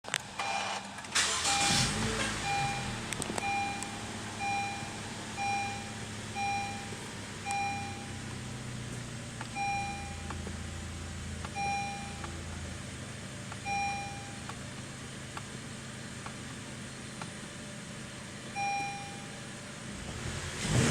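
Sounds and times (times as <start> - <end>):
car engine starting and idling: 0.1 - 20.9
dashboard warning chime: 0.4 - 8.3, 9.5 - 10.4, 11.5 - 12.4, 13.6 - 14.6, 18.5 - 19.6.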